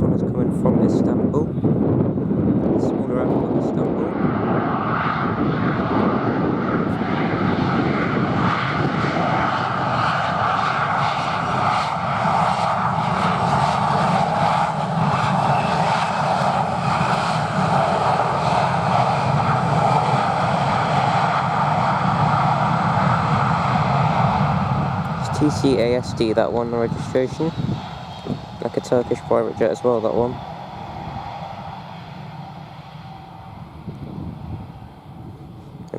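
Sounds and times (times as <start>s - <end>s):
jet engines running: 0.0s - 35.9s.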